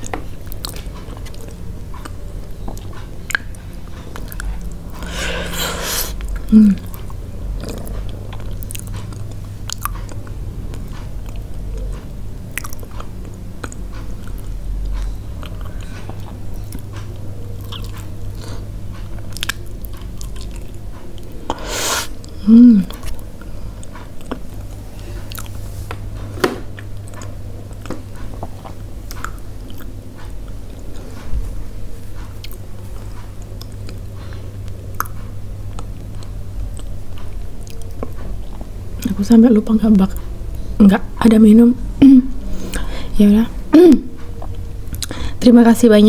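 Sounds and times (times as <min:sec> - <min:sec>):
close biting and wet chewing: 0:02.8 - 0:22.2, 0:33.4 - 0:38.7
person humming mm: 0:05.0 - 0:06.9, 0:21.5 - 0:23.0.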